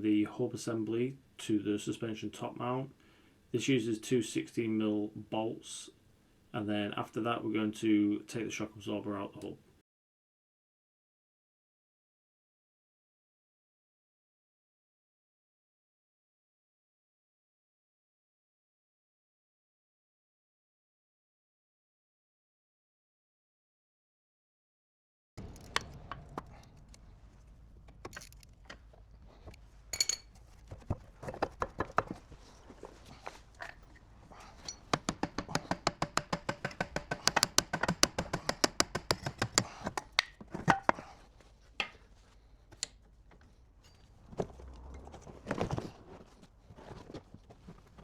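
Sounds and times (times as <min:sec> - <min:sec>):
metal clicks and knocks: 0:25.4 - 0:27.0, 0:27.8 - 0:32.2.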